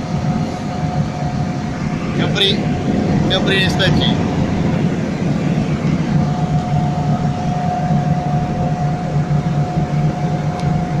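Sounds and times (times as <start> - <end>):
car engine drone from inside: 0.0 - 11.0
road and wind noise: 0.0 - 11.0
thin steady whine: 0.0 - 11.0.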